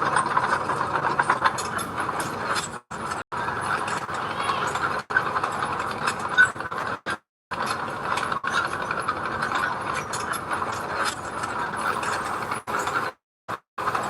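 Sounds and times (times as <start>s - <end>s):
metallic clattering and clicking: 0.0s - 6.9s.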